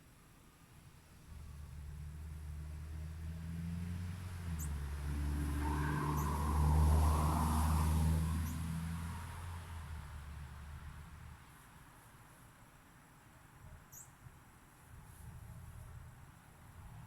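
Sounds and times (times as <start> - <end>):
vehicle passing on road: 1.3 - 11.6
small bird chirping: 13.9 - 14.2.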